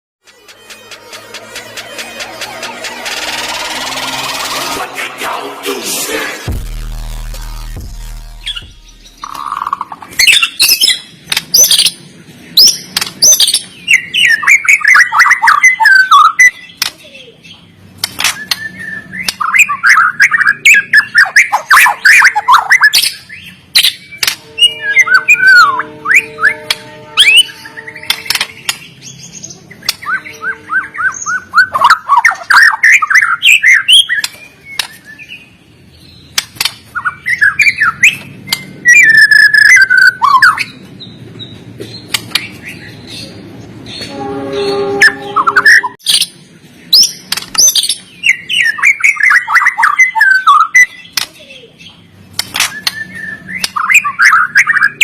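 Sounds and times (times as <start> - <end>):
sharp bird clicking notes: 36.3 - 36.9, 38.1 - 38.7.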